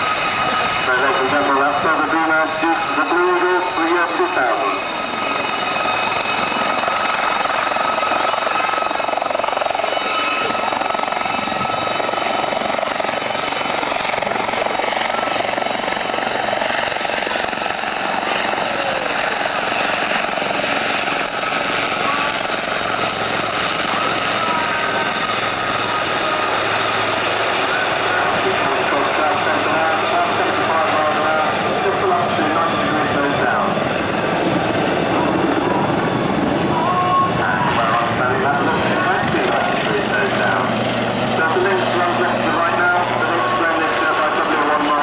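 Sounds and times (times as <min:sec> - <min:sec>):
aircraft engines droning: 0:00.0 - 0:45.0.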